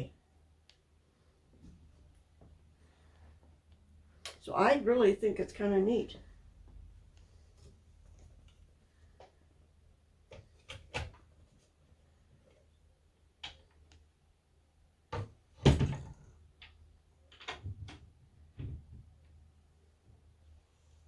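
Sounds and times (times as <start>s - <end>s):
wooden drawers knocking shut: 15.2s - 16.2s.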